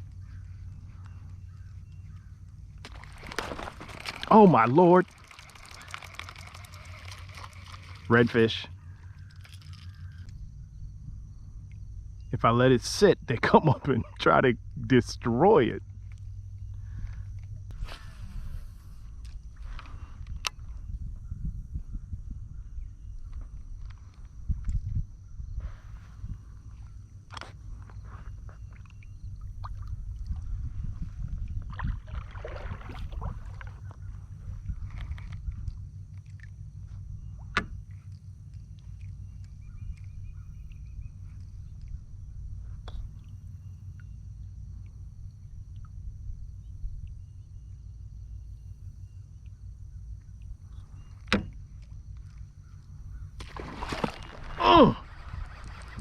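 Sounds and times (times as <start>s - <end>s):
water lapping at hull: 0.0s - 10.3s, 25.8s - 42.2s, 49.3s - 56.0s
wind rumble on microphone: 0.0s - 56.0s
fish splashing in water: 2.8s - 8.1s, 53.4s - 56.0s
wind buffeting microphone: 16.8s - 27.0s, 29.1s - 36.0s, 52.6s - 56.0s
water splashing rush: 53.4s - 56.0s.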